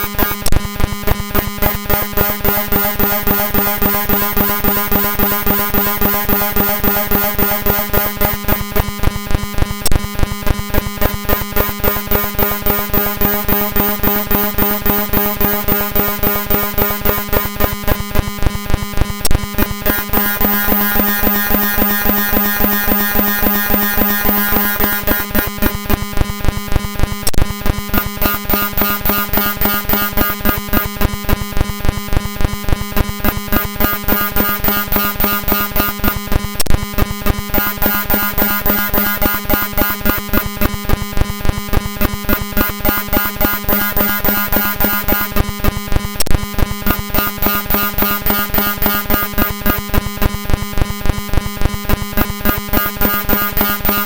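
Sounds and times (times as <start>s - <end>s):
sharp clicks: 0.0s - 8.9s
harsh buzzy pulsing drone: 0.0s - 54.0s.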